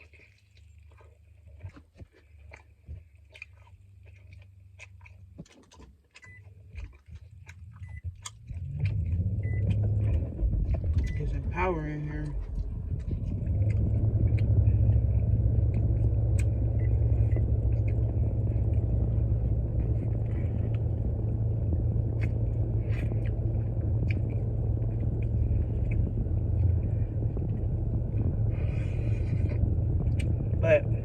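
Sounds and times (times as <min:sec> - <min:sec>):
person chewing: 0:00.0 - 0:11.4, 0:12.2 - 0:30.6
steady low rumble: 0:06.3 - 0:31.0.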